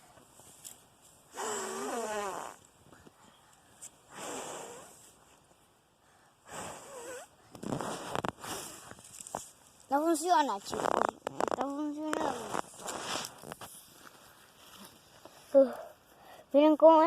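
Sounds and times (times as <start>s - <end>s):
person blowing on a fire: 1.3s - 2.6s, 4.1s - 5.1s, 6.4s - 9.0s, 12.2s - 13.6s
fire crackling: 6.5s - 15.4s.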